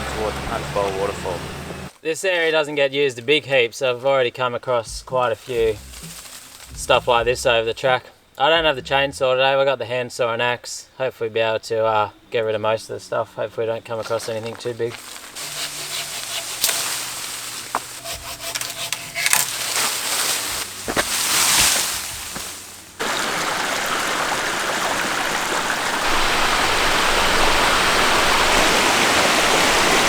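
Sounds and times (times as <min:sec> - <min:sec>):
water rushing over rocks: 0:23.0 - 0:30.0.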